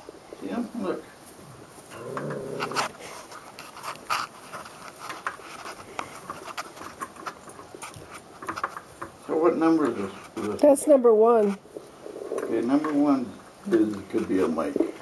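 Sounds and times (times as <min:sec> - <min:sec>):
puppies clicking and scuffing: 0:01.8 - 0:10.5
puppy low vocal sound: 0:01.9 - 0:03.1.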